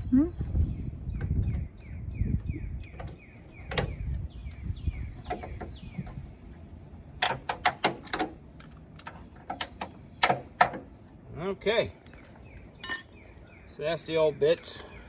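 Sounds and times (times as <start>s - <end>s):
bird chirping: 0.0s - 7.2s, 12.0s - 15.0s.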